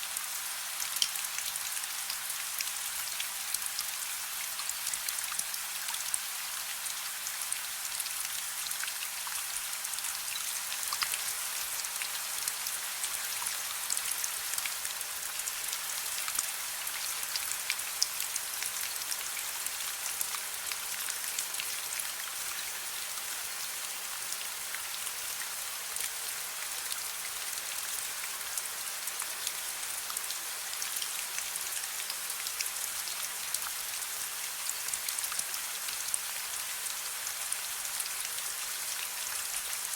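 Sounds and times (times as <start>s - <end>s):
soft rain falling: 0.0s - 39.9s
raindrops ticking on a surface: 0.2s - 6.2s, 7.2s - 22.6s.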